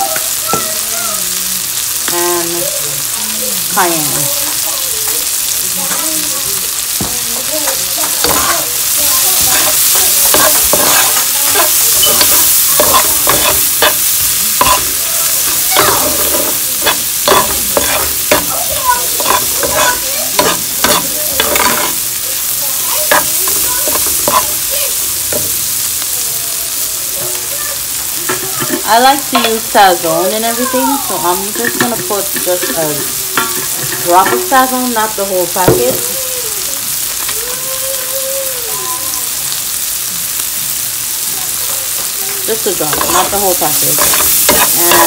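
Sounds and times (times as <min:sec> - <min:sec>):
food sizzling in hot oil: 0:00.0 - 0:45.0
utensil scraping a pot: 0:08.2 - 0:22.0, 0:23.0 - 0:24.6, 0:42.5 - 0:45.0.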